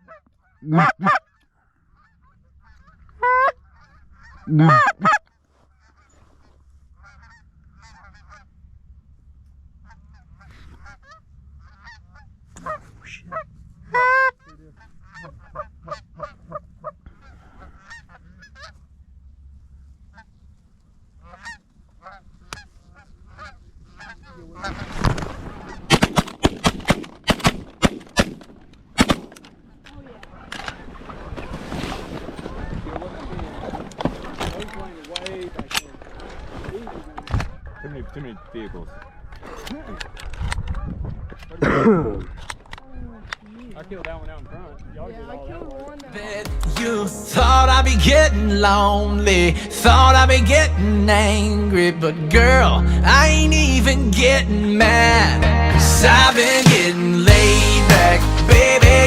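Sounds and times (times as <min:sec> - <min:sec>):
geese honking and clucking: 0:00.0 - 0:08.5, 0:09.8 - 0:18.9, 0:21.1 - 0:26.3, 0:30.0 - 0:31.6, 0:37.2 - 0:41.4, 0:46.2 - 0:59.0.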